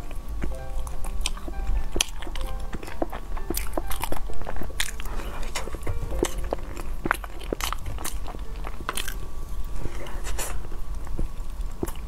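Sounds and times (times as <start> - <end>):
mouth chewing smacks and clicks: 0.0 - 9.2, 10.4 - 12.0
quiet background music: 0.0 - 12.0.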